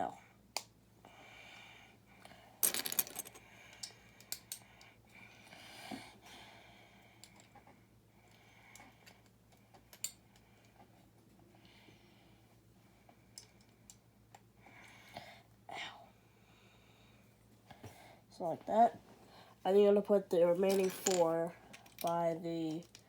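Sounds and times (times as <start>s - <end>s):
plastic bricks clicking and rattling: 2.6s - 3.4s.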